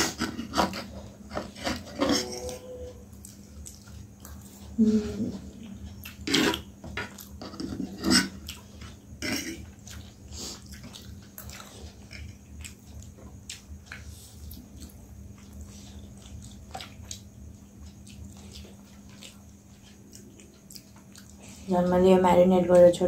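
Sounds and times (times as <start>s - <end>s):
faint steady hum: 0.0s - 23.0s
chewing chicken wings: 5.4s - 21.7s.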